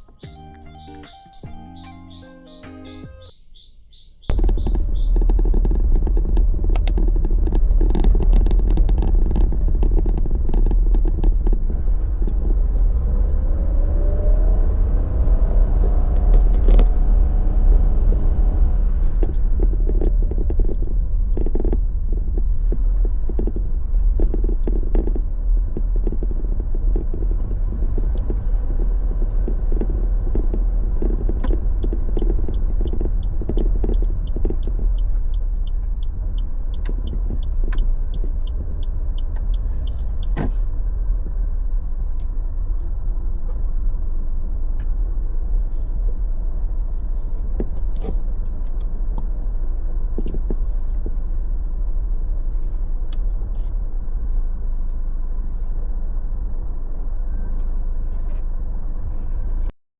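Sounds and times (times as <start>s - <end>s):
vehicle engine rumbling: 0.0s - 59.8s
rattles and clicks: 4.3s - 13.0s, 16.1s - 40.8s.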